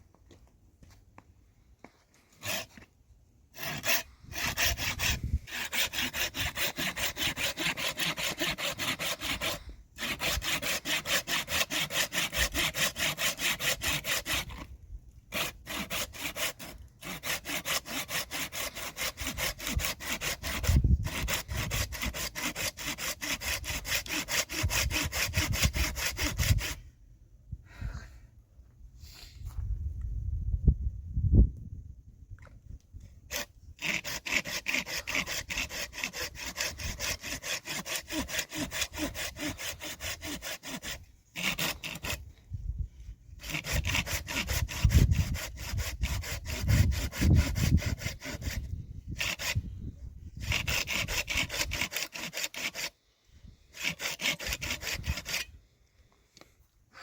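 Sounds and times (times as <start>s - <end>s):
hand saw cutting wood: 2.1s - 2.9s, 3.5s - 26.9s, 33.3s - 42.5s, 43.3s - 49.7s, 50.3s - 53.0s, 53.7s - 55.6s.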